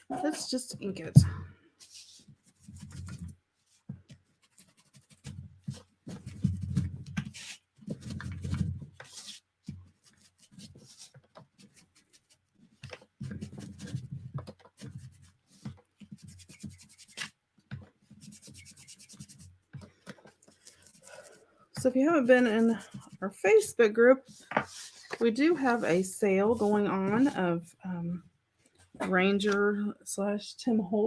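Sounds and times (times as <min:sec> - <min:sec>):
ink applicator scrubbing paper: 0:18.1 - 0:19.5, 0:24.3 - 0:27.4.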